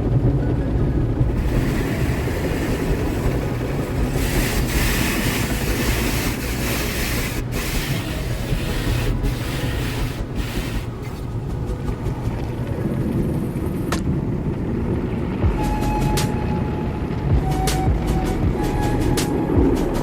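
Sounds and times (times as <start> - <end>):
car interior low rumble: 0.0 - 18.9
loud hiss: 1.3 - 11.4.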